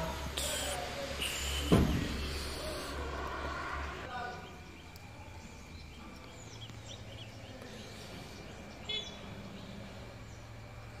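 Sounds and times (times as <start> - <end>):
small birds chirping: 3.8 - 11.0.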